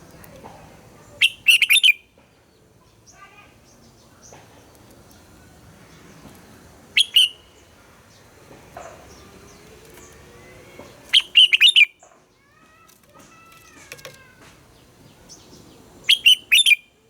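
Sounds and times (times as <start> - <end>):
faint bird chirps: 1.0 - 2.1, 7.0 - 14.3, 15.3 - 17.0
bulbul song: 1.2 - 2.2, 6.9 - 17.0.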